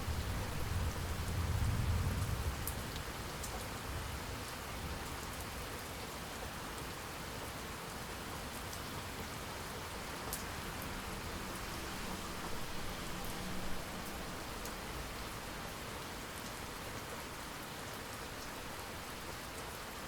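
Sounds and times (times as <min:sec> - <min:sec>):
steady rain: 0:00.0 - 0:20.0
close raindrop ticks: 0:01.6 - 0:03.8, 0:10.2 - 0:11.0.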